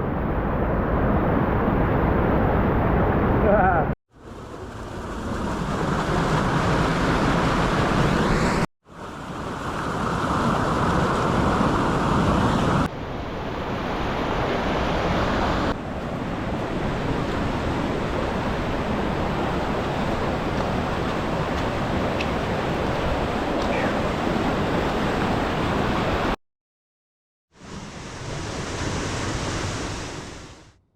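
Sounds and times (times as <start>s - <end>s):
creek running high: 4.1s - 12.9s, 14.0s - 26.4s.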